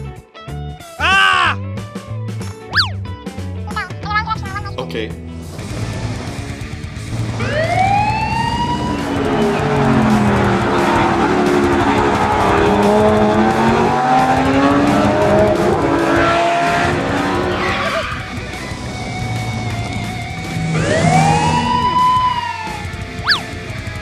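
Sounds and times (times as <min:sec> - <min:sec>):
noisy rush: 0:05.6 - 0:24.0
wavering engine-like tones: 0:05.7 - 0:24.0.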